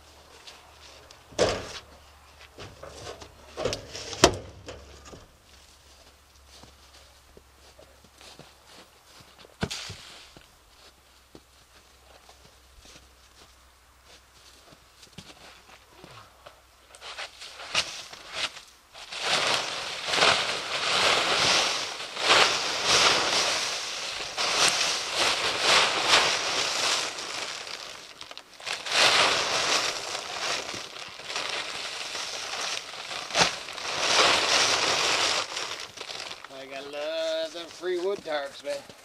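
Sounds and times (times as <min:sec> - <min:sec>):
tarp snapping: 0:17.0 - 0:36.6
plastic tarp crinkling: 0:17.0 - 0:38.6.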